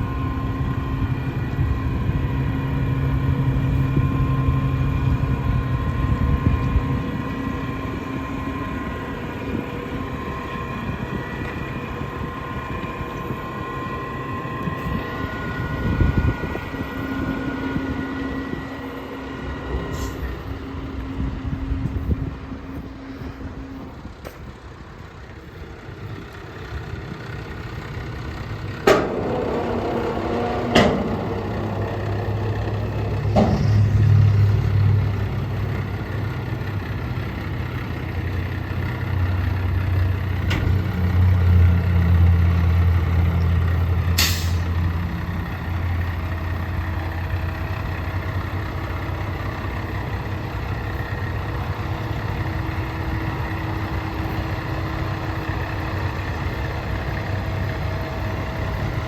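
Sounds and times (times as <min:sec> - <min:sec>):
diesel truck engine running: 0:00.0 - 0:59.0
sharp clunks: 0:28.8 - 0:34.2.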